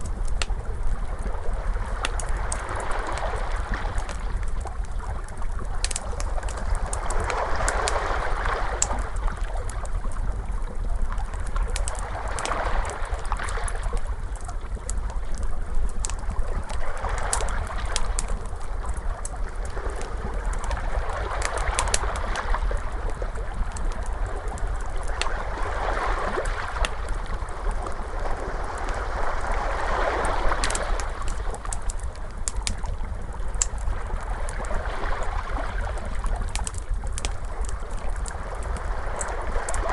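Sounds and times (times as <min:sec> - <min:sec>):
low steady rumble: 0:00.0 - 0:39.9
wood fire crackling and popping: 0:00.0 - 0:39.9
ocean waves washing in: 0:19.9 - 0:36.6.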